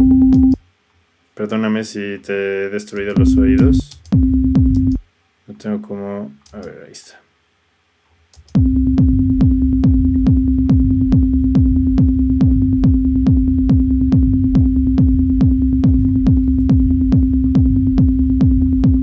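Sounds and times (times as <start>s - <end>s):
steady held synth tone: 0.0s - 0.6s, 8.6s - 19.0s
techno kick drum: 0.0s - 0.6s, 3.1s - 5.0s, 8.6s - 19.0s
low rumble bass: 3.2s - 5.0s, 8.6s - 19.0s.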